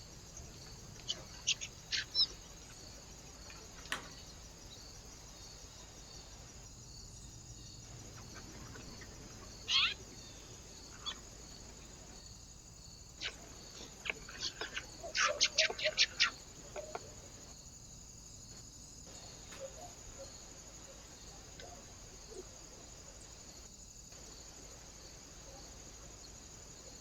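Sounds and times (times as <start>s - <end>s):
small birds chirping: 0.0s - 12.4s, 13.1s - 17.5s.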